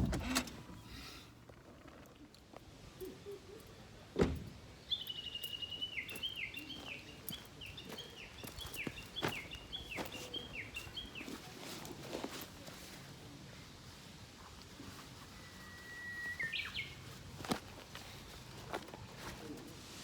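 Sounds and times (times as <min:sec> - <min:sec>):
songbird trilling and whistling: 0:04.9 - 0:11.2, 0:15.4 - 0:17.0.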